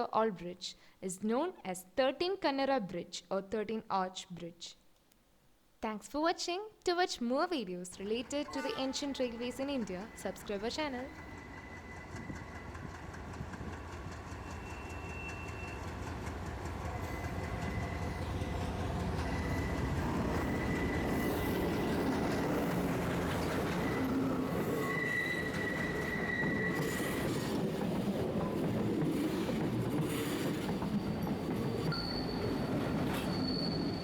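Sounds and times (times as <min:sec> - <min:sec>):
train rumbling on rails: 0:08.4 - 0:34.0
high wheel squeal: 0:14.4 - 0:16.0, 0:19.2 - 0:21.9, 0:23.4 - 0:27.5, 0:30.2 - 0:34.0.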